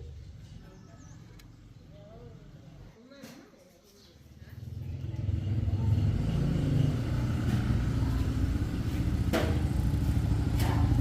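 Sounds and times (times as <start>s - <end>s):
motorcycle engine running: 4.7s - 11.0s.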